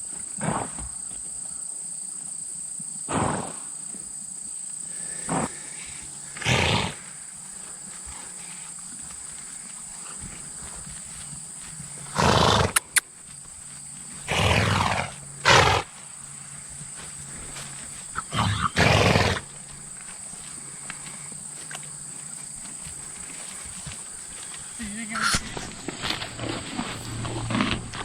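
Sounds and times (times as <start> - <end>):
livestock breathy calls: 18.1 - 19.5.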